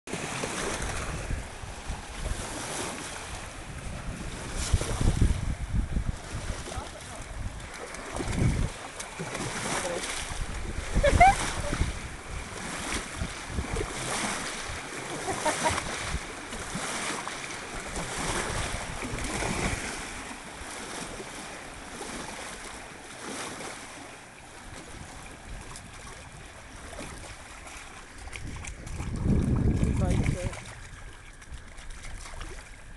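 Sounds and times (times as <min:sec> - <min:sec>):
water washing from boat waves: 0:00.1 - 0:32.9
wind buffeting microphone: 0:00.4 - 0:17.1, 0:17.7 - 0:20.7, 0:24.6 - 0:32.9.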